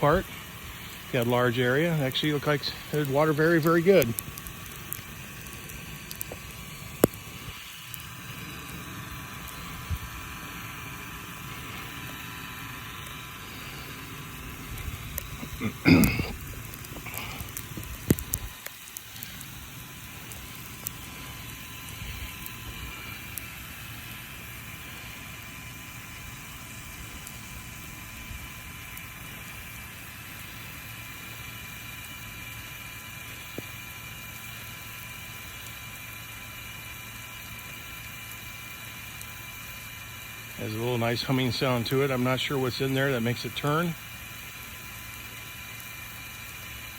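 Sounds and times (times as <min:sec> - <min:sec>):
humming sprinkler head: 0:00.0 - 0:46.9
sprinkler spray hissing: 0:00.0 - 0:46.9
sharp clicks: 0:02.1 - 0:08.8, 0:13.8 - 0:19.6.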